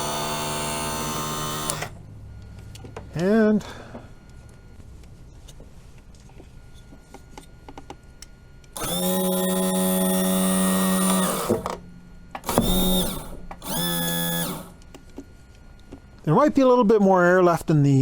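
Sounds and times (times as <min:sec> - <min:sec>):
electric pump motor whining: 0:00.0 - 0:02.8, 0:08.7 - 0:15.2.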